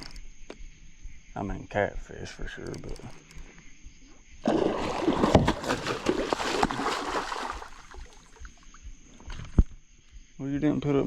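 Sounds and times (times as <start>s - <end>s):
fish splashing in water: 4.4s - 8.6s.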